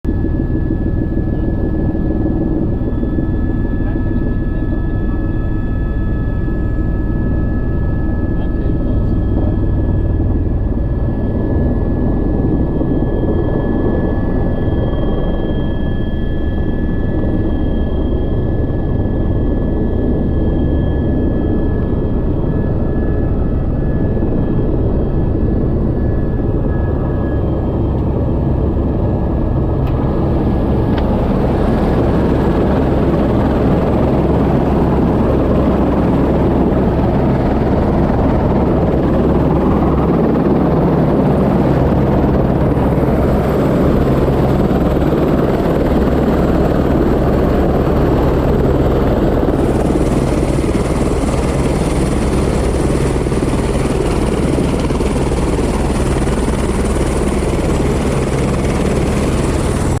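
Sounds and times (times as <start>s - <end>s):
helicopter rotor and engine: 0.0s - 60.0s.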